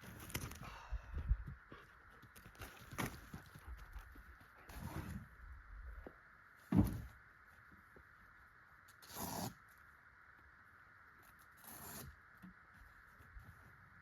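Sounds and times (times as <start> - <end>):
camping gear thump: 6.7 - 7.1.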